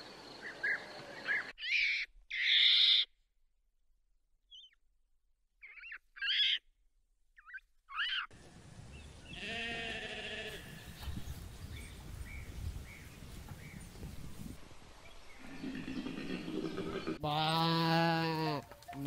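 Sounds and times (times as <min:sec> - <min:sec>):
outdoor background noise: 0:00.0 - 0:03.3, 0:05.6 - 0:19.0
sheep bleating: 0:09.3 - 0:10.9, 0:17.2 - 0:18.7.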